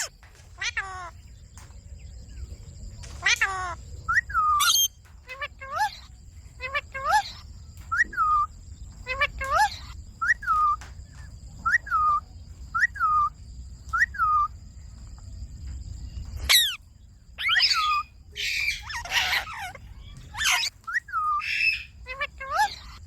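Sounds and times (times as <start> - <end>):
parrot harsh raspy screeches: 4.4 - 7.4, 16.5 - 16.8, 17.4 - 23.0.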